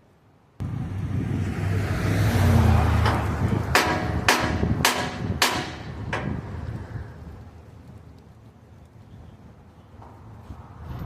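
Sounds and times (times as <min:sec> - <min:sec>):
steady low rumble: 0:00.6 - 0:09.7
hammer striking metal: 0:03.0 - 0:06.4.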